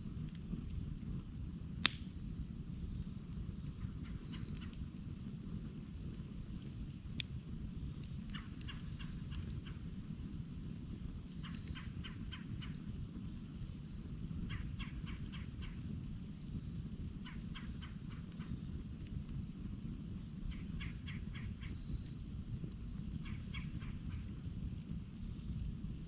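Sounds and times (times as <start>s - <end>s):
campfire low rumble: 0.0s - 26.0s
fire crackling: 0.0s - 26.0s
fire popping: 0.0s - 26.0s.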